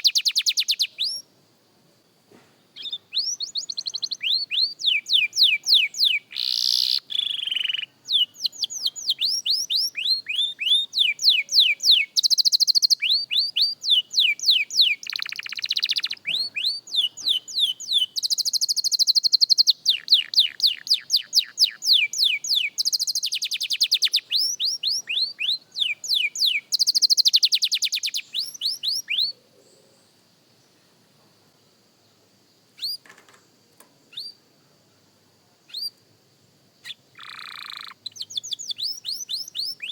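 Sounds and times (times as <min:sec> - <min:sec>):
canary singing trills: 0:00.0 - 0:01.3, 0:02.7 - 0:29.9, 0:32.8 - 0:33.1, 0:34.1 - 0:34.4, 0:35.7 - 0:36.0, 0:36.8 - 0:39.9
single bird chirps: 0:00.0 - 0:01.3, 0:02.7 - 0:30.2, 0:32.7 - 0:34.4, 0:35.7 - 0:36.0, 0:36.8 - 0:39.9.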